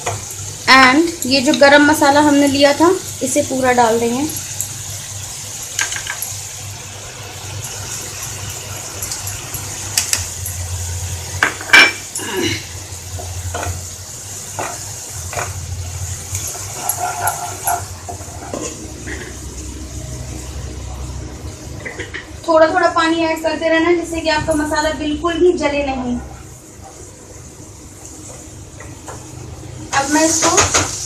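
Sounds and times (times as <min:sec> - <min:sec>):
metal spoon scraping cooking pan: 0:16.3 - 0:19.4.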